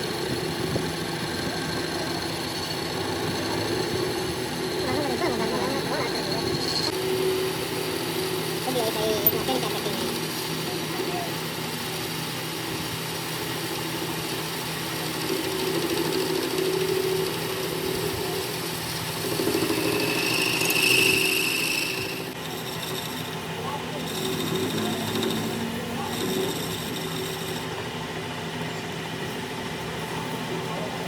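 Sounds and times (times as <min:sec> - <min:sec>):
machine tool motor hum: 0:00.0 - 0:30.4
high-pitched whine: 0:00.0 - 0:31.0.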